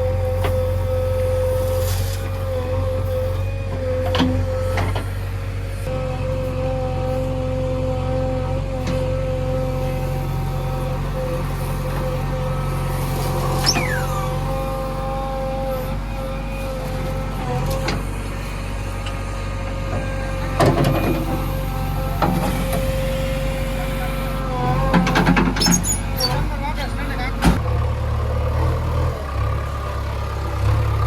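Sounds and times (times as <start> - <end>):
backhoe engine hum: 0.0 - 31.0
constant machine whine: 0.0 - 31.0
falling whistle: 13.4 - 14.5.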